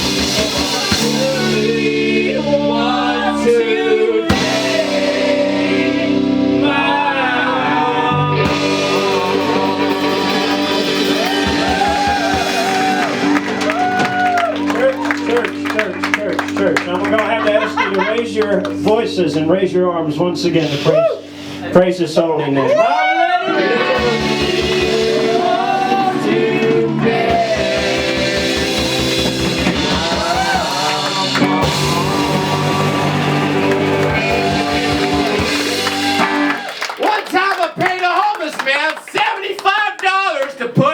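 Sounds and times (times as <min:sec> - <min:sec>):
drum kit: 0:00.0 - 0:03.4, 0:04.2 - 0:07.0, 0:08.1 - 0:19.5, 0:23.8 - 0:37.0
voices singing: 0:00.0 - 0:13.6, 0:22.5 - 0:36.6
live rock band: 0:00.0 - 0:21.6, 0:23.5 - 0:37.0
electric guitars: 0:00.0 - 0:21.7, 0:22.6 - 0:36.9
bass guitar: 0:00.0 - 0:22.8, 0:23.6 - 0:36.8.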